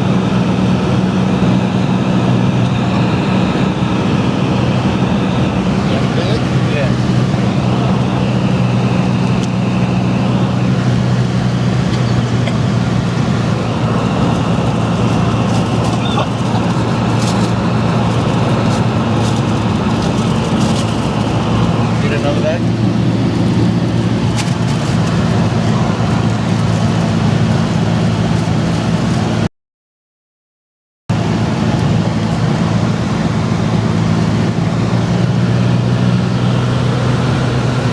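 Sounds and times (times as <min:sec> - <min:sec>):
airplane engine and propeller droning: 0:00.0 - 0:29.5, 0:31.1 - 0:37.9.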